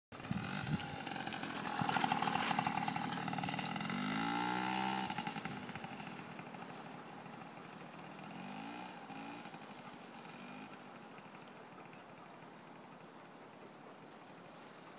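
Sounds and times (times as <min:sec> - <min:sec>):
small motorbike engine revving: 0:00.2 - 0:12.0.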